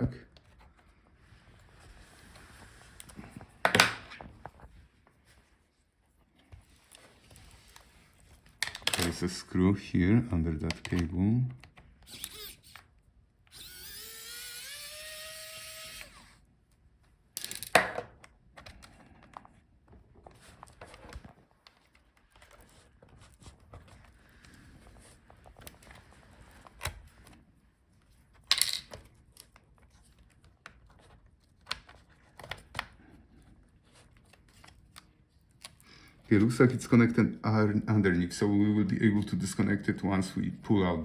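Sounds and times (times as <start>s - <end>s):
electric screwdriver whining: 12.0s - 12.9s, 13.5s - 16.4s
clicks of small parts handled: 17.4s - 18.0s, 28.4s - 29.5s.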